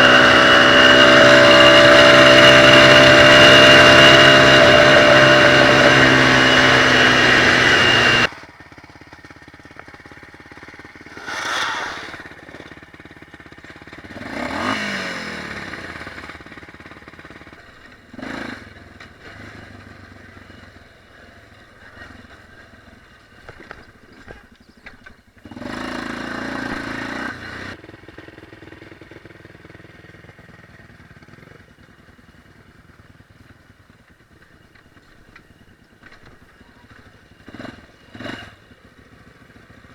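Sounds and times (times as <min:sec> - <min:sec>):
distant dirt bike engines: 0:00.0 - 0:39.9
motorcycle engine running loud: 0:00.0 - 0:39.9.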